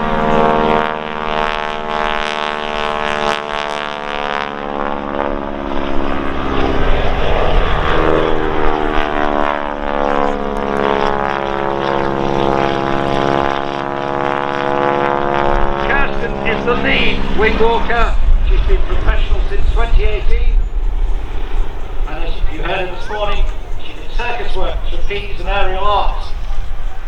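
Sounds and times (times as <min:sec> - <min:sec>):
biplane engines droning: 0:00.0 - 0:27.0.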